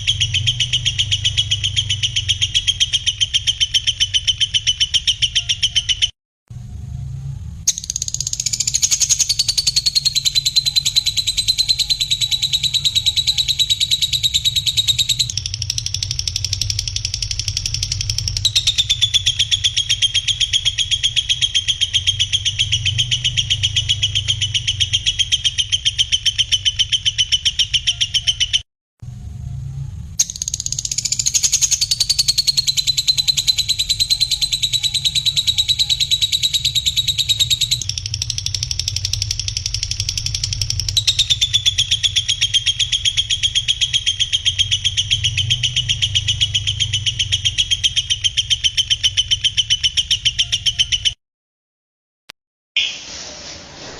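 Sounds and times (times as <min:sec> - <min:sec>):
songbird buzzing trill: 0:07.7 - 0:24.9, 0:30.2 - 0:47.5.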